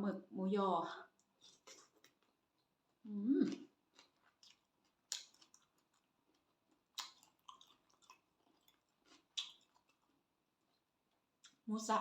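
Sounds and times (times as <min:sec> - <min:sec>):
person chewing food: 0:01.2 - 0:11.7.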